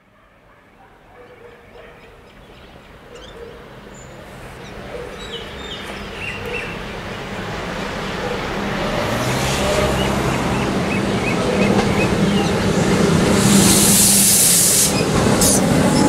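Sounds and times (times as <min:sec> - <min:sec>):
bird chirps: 0:01.2 - 0:06.9
train rumbling: 0:02.9 - 0:16.0.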